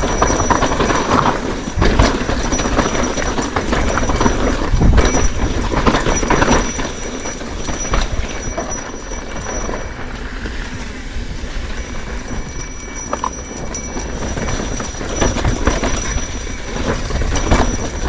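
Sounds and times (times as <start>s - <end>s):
bicycle rattling over rough ground: 0.0s - 18.0s
wind rumble on microphone: 0.0s - 18.0s.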